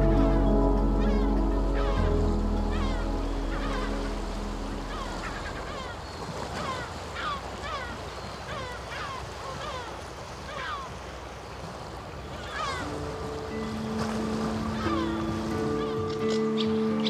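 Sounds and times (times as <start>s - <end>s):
birds calling: 0.0s - 17.0s
surf: 0.0s - 17.0s
wind: 0.0s - 17.0s.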